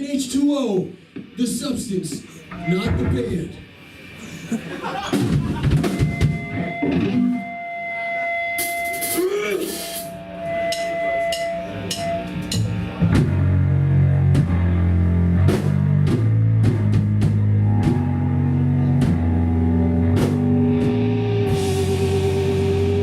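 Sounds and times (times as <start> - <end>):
band playing loud rock: 2.6 - 23.0
drum and cymbal hits: 4.7 - 6.8, 8.6 - 23.0.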